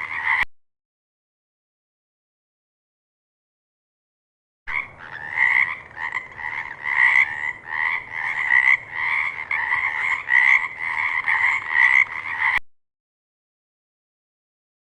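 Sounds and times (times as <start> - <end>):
frog croaking: 0.0 - 0.4, 4.7 - 12.6.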